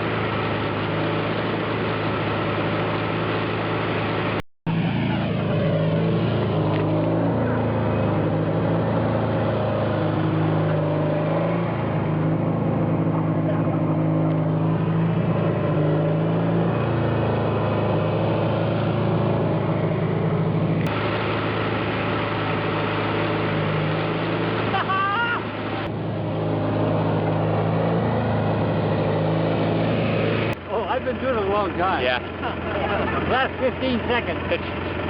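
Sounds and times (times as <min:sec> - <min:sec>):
tractor engine at full throttle: 0:00.0 - 0:35.0.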